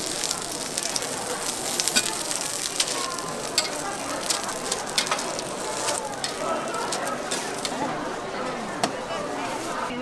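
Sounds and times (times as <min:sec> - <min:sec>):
food sizzling on a griddle: 0:00.0 - 0:07.9
metal spatulas scraping griddle: 0:01.5 - 0:07.9.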